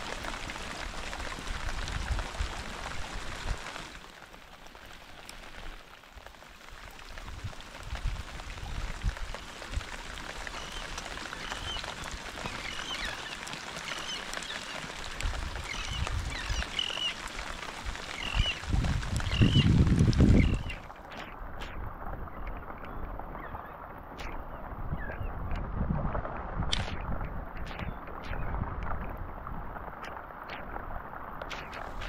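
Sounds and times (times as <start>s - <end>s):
rain falling: 0.0s - 32.0s
low wind rumble: 17.8s - 32.0s.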